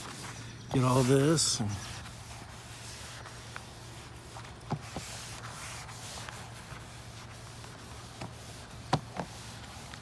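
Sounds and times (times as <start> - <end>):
sponge scrubbing siding: 0.0 - 10.0.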